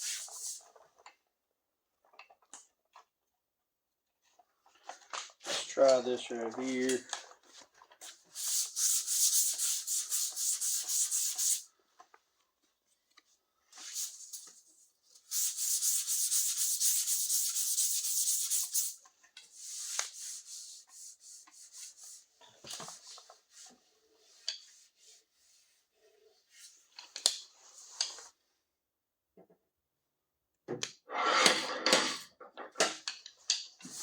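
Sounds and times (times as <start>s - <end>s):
sanding on sheet metal: 8.4s - 11.7s, 15.3s - 19.0s
light scraping: 31.1s - 32.8s.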